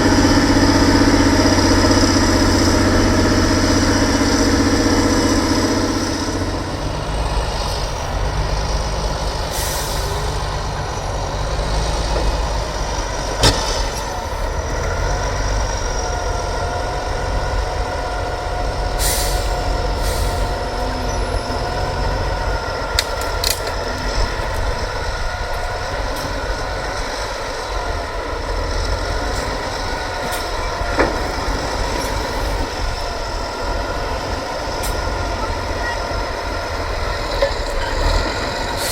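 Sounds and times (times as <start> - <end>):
diesel truck engine rumbling: 0.0 - 38.9
air brake hisses: 9.5 - 10.3, 19.0 - 20.6.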